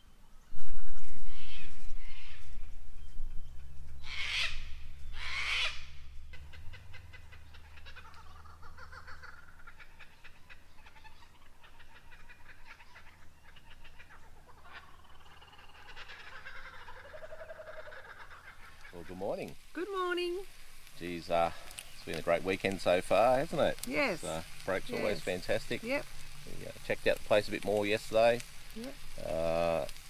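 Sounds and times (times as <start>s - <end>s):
bird chirps and trills: 0.0s - 19.1s
harsh bird calls: 0.0s - 19.5s, 20.5s - 29.9s.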